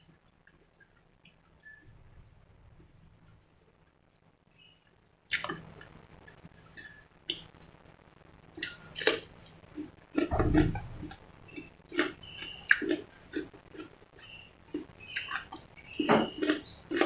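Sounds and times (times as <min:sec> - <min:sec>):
person chewing crispy chicken: 0:08.6 - 0:17.0.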